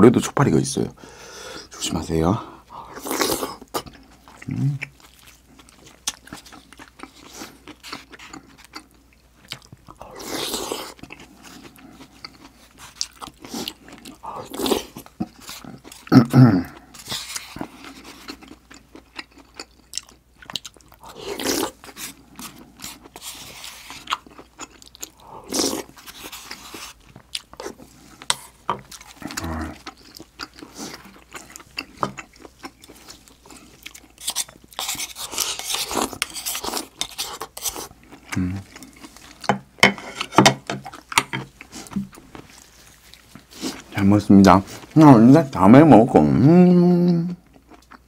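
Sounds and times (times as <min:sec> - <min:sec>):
chewing and mouth clicks: 0:03.6 - 0:16.1, 0:16.7 - 0:39.7, 0:47.4 - 0:48.0
chopsticks scraping a bowl: 0:34.2 - 0:37.9, 0:39.8 - 0:40.5.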